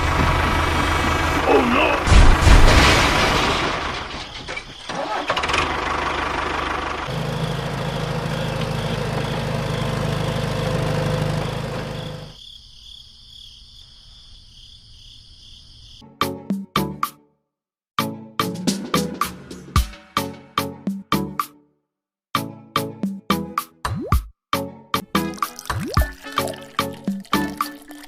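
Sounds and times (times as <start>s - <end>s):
engine running: 0.0s - 12.4s.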